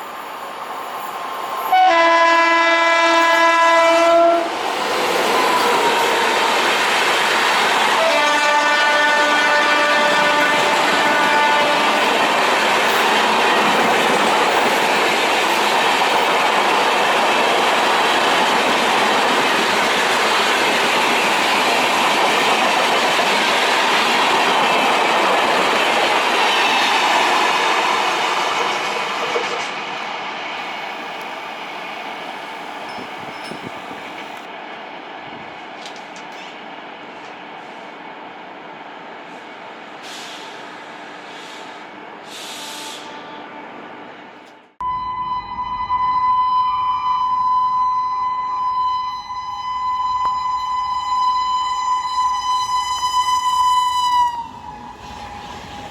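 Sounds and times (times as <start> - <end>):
train wheels clattering on rails: 4.5 - 30.7, 32.8 - 34.5, 35.7 - 37.4.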